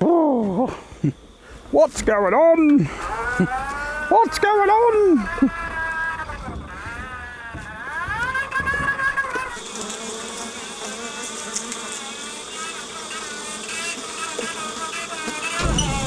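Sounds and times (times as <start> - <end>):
bees buzzing: 2.4 - 16.0
steady whine: 12.2 - 16.0.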